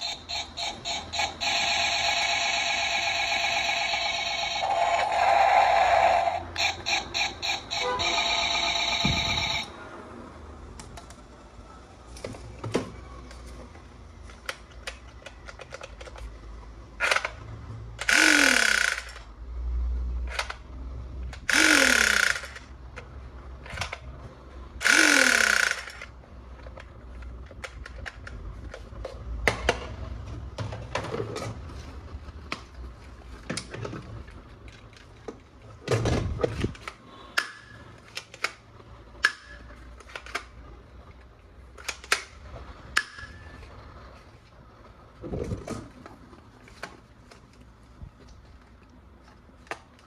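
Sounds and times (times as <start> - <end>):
toy gun electronic shot: 0.0 - 9.7, 18.0 - 19.2, 21.5 - 22.6, 24.8 - 26.0
plastic toy clicks: 14.3 - 16.3, 18.0 - 19.3, 21.3 - 24.0, 24.8 - 28.8.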